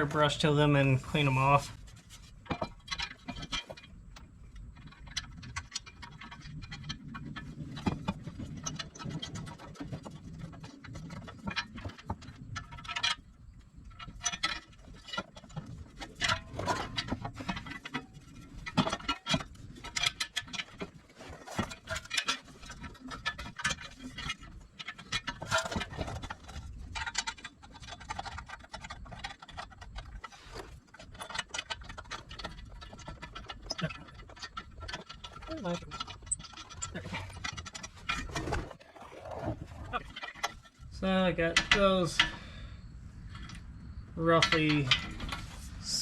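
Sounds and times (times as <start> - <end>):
metal parts clinking and scraping: 13.8 - 42.5, 43.3 - 46.0.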